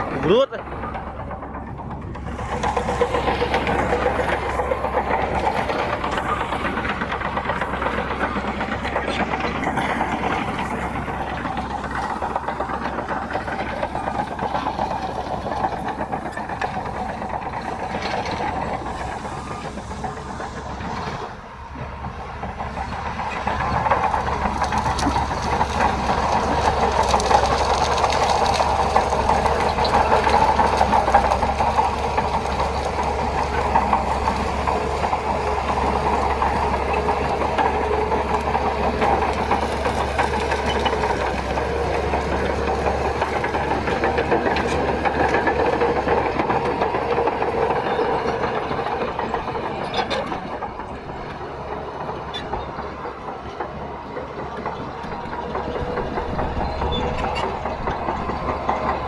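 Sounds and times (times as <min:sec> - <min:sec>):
bulldozer diesel engine: 0:00.0 - 0:59.0
steel tracks clattering: 0:00.0 - 0:59.0.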